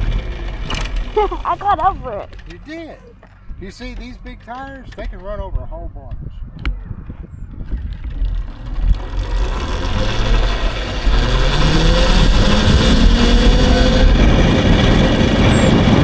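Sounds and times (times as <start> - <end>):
wind on microphone: 4.9 - 16.0
electric motor whining: 8.0 - 16.0.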